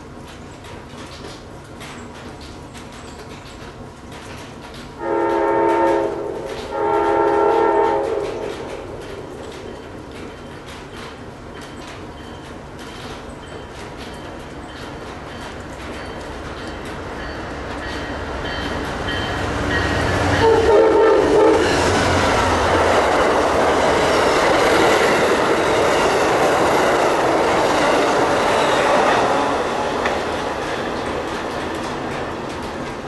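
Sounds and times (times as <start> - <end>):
train wheels on rails: 0.0 - 33.0
train horn blast: 5.0 - 8.9, 19.1 - 22.0.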